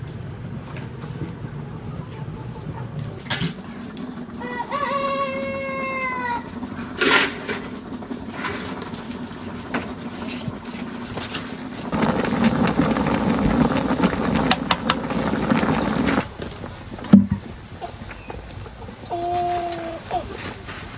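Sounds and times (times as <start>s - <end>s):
steady rushing noise: 11.7s - 17.3s.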